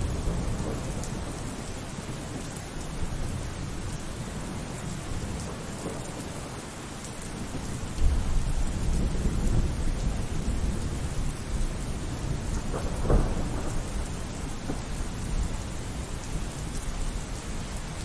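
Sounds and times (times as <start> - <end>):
rolling thunder: 0.0 - 1.7, 7.5 - 17.0
steady rain: 0.0 - 18.0.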